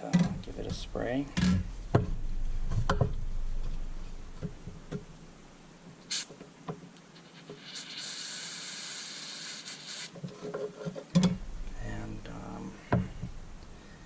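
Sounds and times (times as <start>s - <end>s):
aerosol spray hissing: 6.1s - 6.3s, 7.6s - 10.1s.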